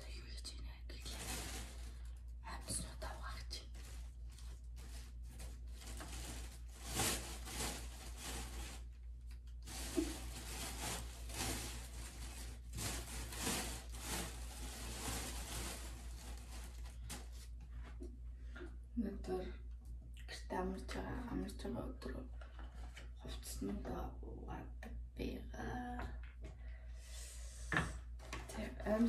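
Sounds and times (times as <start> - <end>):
close rustling and rubbing: 0.8 - 18.0.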